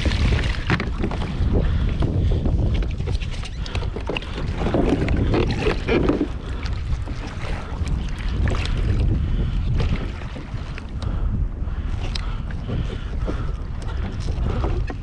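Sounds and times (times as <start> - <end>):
water sounds: 0.0 - 15.0
wind rumbling on microphone: 0.0 - 15.0.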